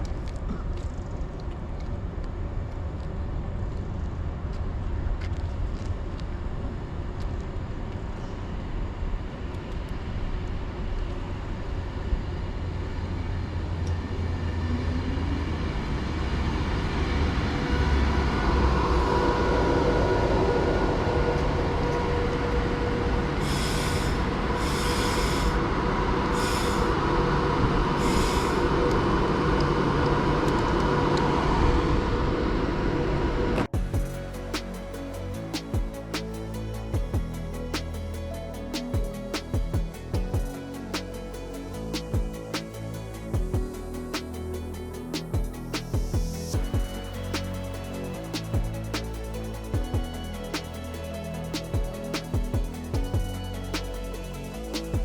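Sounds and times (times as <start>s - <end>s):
steady whining tones: 4.8s - 55.0s
short high hissing bursts: 23.4s - 25.6s, 26.4s - 27.0s, 28.0s - 28.7s, 33.8s - 55.0s.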